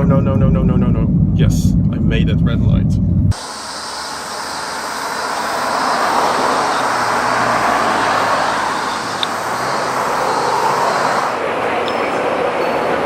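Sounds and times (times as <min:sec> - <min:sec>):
subway train rushing on rails: 0:03.4 - 0:13.0.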